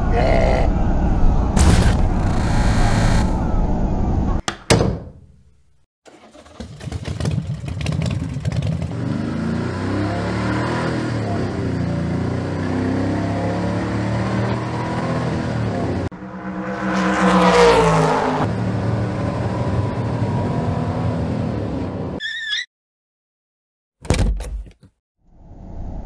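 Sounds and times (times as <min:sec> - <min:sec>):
car passing by: 0:16.0 - 0:18.6.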